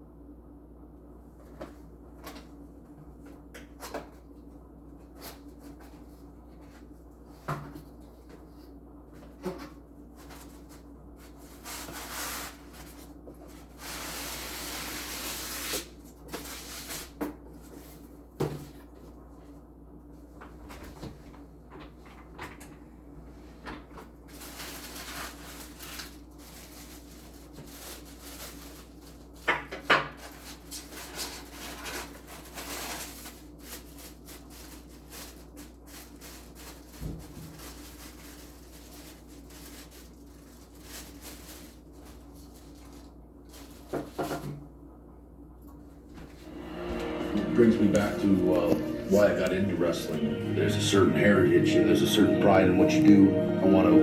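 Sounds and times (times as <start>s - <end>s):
cardboard and plastic rubbing: 24.3s - 44.6s
low hum: 46.4s - 54.0s.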